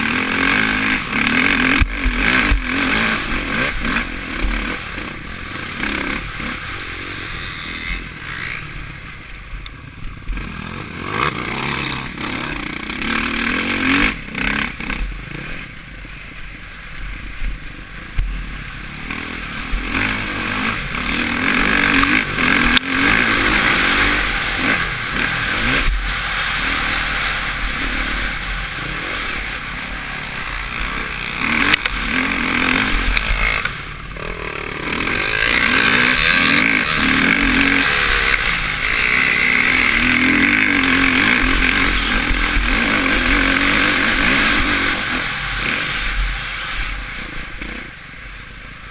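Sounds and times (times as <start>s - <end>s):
motocross bike engine revving: 0.0s - 48.9s.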